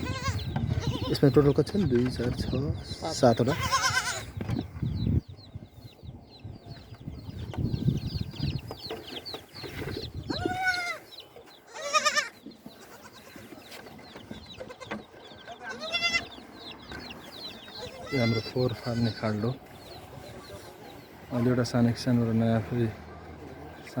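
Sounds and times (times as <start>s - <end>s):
goat kids bleating: 0.0s - 1.5s, 3.4s - 4.4s, 10.2s - 13.6s, 14.4s - 16.4s, 17.6s - 19.4s
chicks cheeping: 0.0s - 24.0s.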